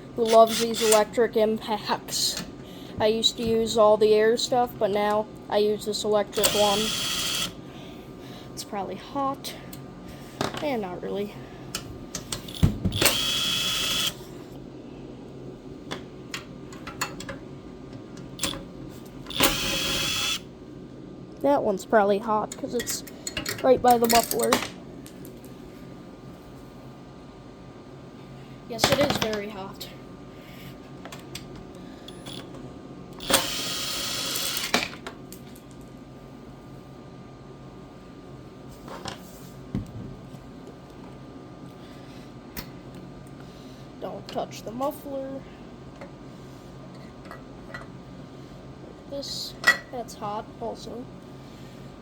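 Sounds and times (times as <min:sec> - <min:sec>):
impact driver bursts: 0:06.4 - 0:07.6, 0:12.9 - 0:14.2, 0:19.3 - 0:20.4, 0:33.2 - 0:34.7
tool and bolt clicks: 0:18.4 - 0:18.6, 0:19.3 - 0:20.0, 0:32.1 - 0:32.5, 0:33.2 - 0:33.5.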